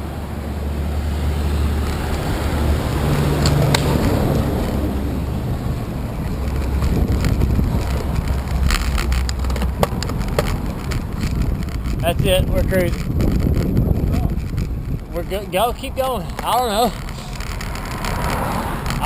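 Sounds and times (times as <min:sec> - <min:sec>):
wind buffeting microphone: 0:01.5 - 0:19.0.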